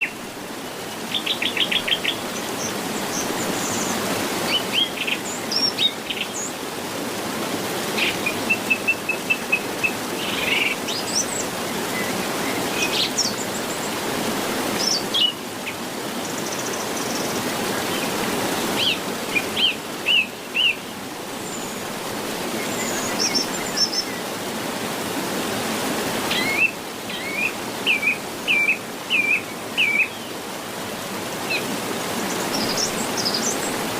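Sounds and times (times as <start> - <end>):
small birds chirping and singing: 31.5 - 33.8.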